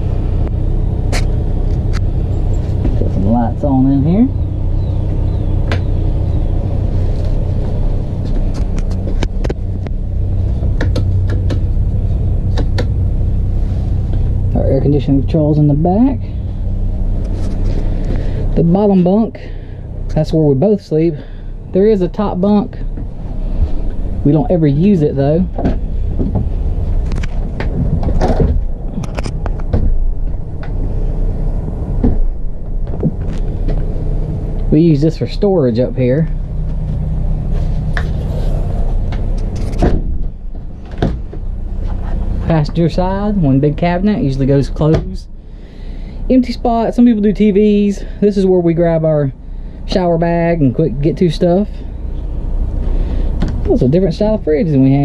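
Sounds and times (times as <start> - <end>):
truck engine idling: 0.0 - 55.0
sharp clicks and knocks: 10.6 - 11.7, 12.5 - 13.0.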